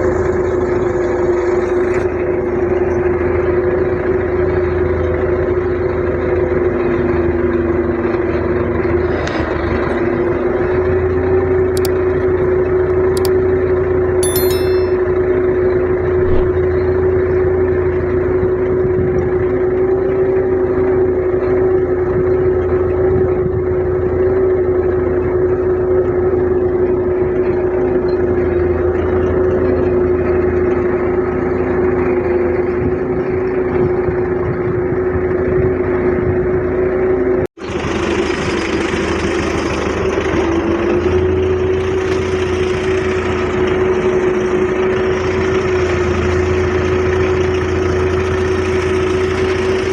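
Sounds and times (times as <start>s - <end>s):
tractor diesel engine running: 37.6s - 49.9s.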